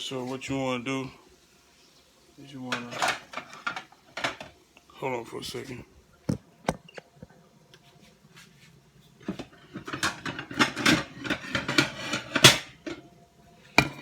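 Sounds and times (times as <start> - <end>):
kitchen items clattering: 2.6 - 4.6, 9.2 - 13.1, 13.7 - 14.0.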